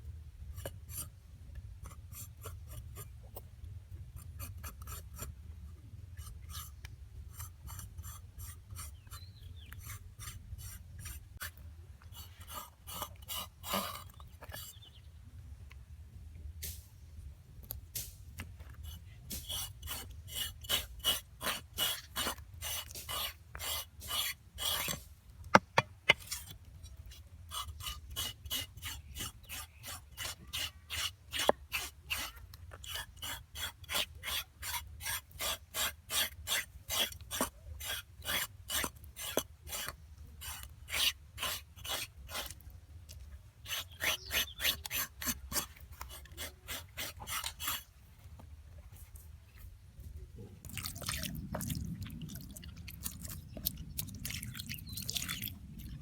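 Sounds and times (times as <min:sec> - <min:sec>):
rasping scraping strokes: 0:06.2 - 0:14.8, 0:18.0 - 0:48.4.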